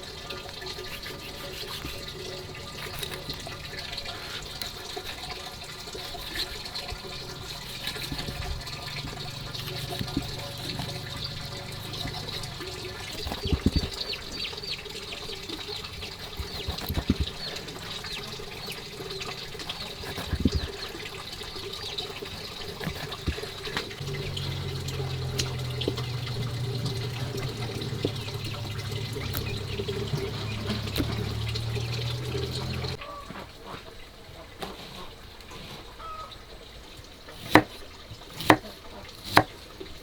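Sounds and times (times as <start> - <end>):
water trickling and splashing: 0.0 - 40.0
low steady hum: 21.6 - 33.0.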